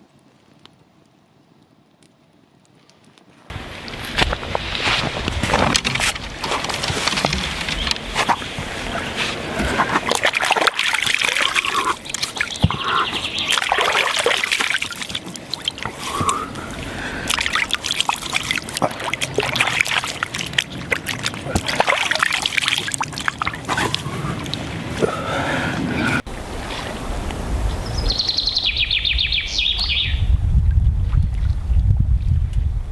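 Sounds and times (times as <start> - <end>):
water trickling and splashing: 3.5 - 28.8
water drips: 5.2 - 28.3.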